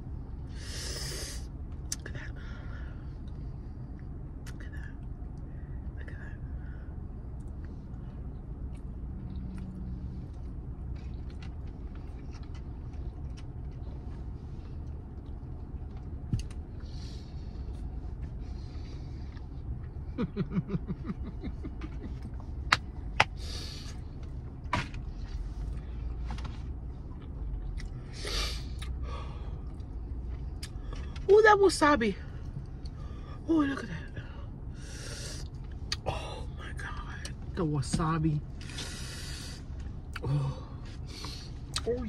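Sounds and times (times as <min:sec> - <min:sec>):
car engine idling: 0:00.0 - 0:42.0
sharp breaths: 0:34.2 - 0:35.5, 0:38.6 - 0:41.6.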